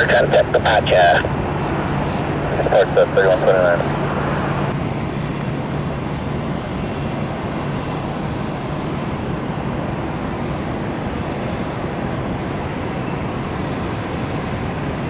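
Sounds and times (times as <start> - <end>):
jet engines roaring at takeoff: 0.0 - 15.0.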